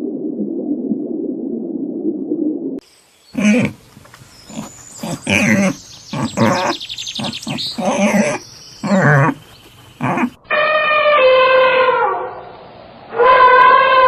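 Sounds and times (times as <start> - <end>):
birds chirping: 2.9 - 10.5
animal calling loudly: 3.4 - 3.9, 4.5 - 11.6.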